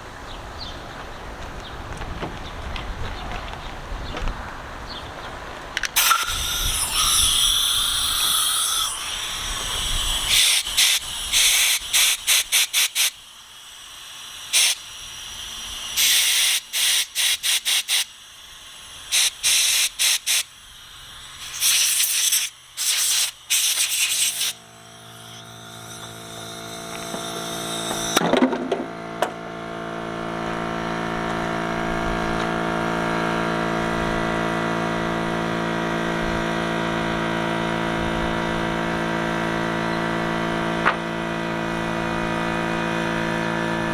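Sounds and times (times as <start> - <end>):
compressed air blasts hissing: 6.0 - 28.2
motor running: 6.0 - 43.9.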